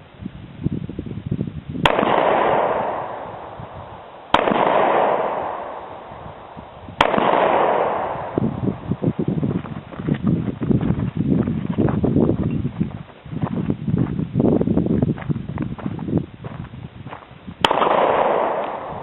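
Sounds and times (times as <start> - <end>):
pistol shots: 1.8 - 8.5, 17.6 - 19.0.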